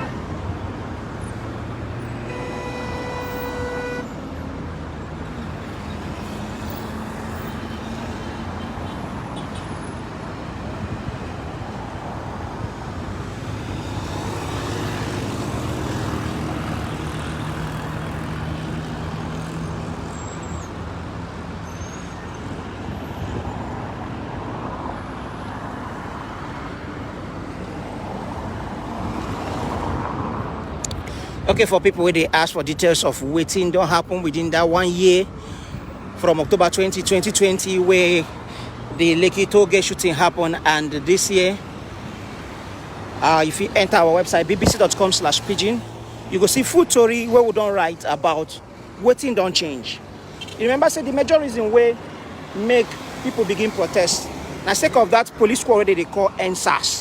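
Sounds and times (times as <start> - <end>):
vehicle engines passing: 0.0 - 57.0
car horn blast: 2.2 - 4.2.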